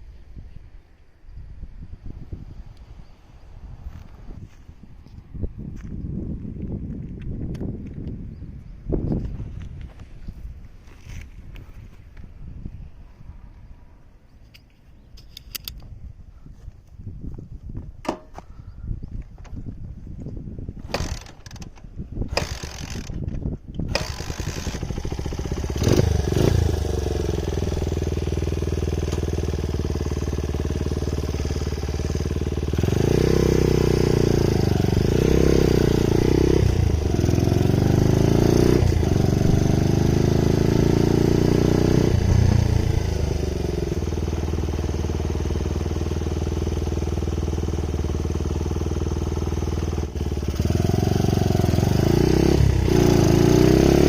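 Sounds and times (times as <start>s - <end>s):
scooter engine starting and idling: 20.8s - 54.0s
engine revving: 22.3s - 23.2s, 23.9s - 54.0s.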